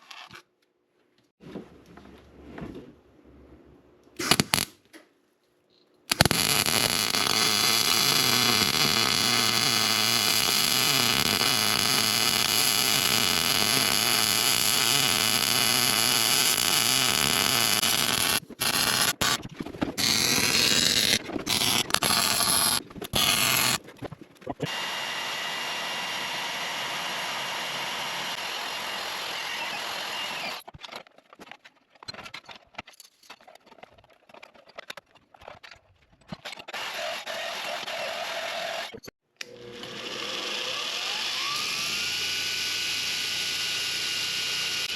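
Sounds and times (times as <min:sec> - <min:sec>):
power tool working metal: 0:06.1 - 0:19.4, 0:20.0 - 0:23.8, 0:24.7 - 0:30.6, 0:36.8 - 0:44.9.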